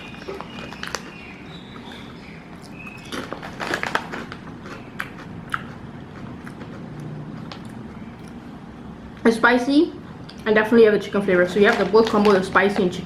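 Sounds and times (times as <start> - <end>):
crunching potato chips: 0.0 - 8.4, 11.5 - 13.0.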